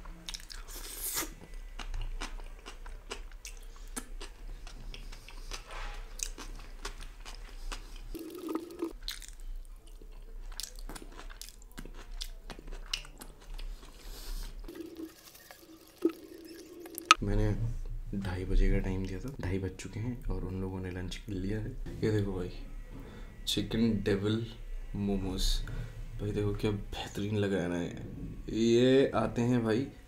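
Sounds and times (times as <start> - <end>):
person chewing food: 0.2 - 17.2.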